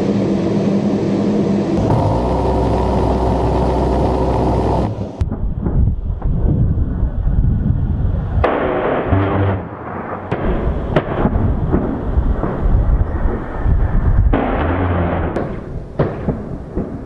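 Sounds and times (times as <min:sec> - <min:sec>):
explosions rumbling: 0:05.2 - 0:17.0.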